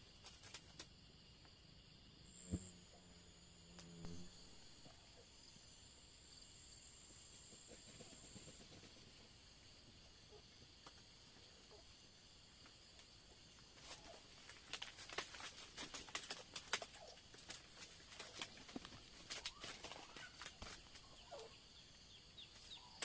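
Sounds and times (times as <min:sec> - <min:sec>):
night insects trilling: 0:00.0 - 0:23.0
crackling and rustling clicks: 0:13.8 - 0:21.1.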